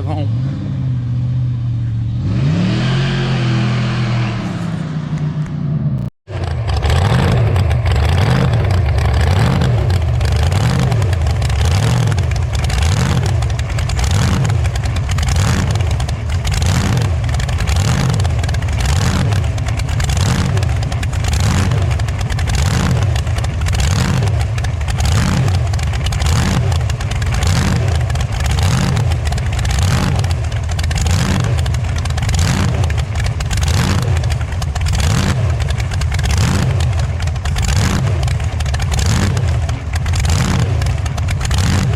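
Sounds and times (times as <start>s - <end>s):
vehicle engine running: 0.0s - 41.9s.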